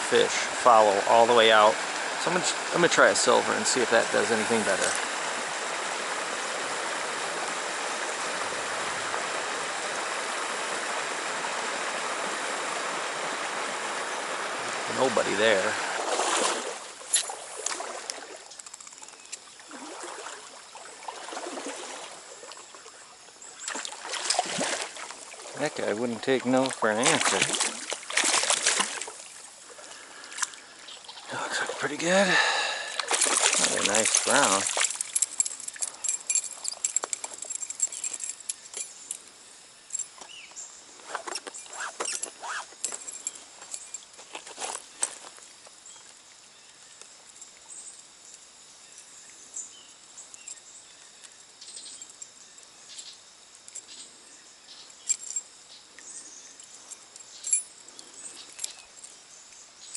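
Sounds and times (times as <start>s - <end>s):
stream water running: 0.0s - 59.9s
fishing tackle clicks and rattles: 18.5s - 19.4s, 33.0s - 39.2s, 41.2s - 44.4s, 55.0s - 55.5s
short squeaks: 40.0s - 44.0s.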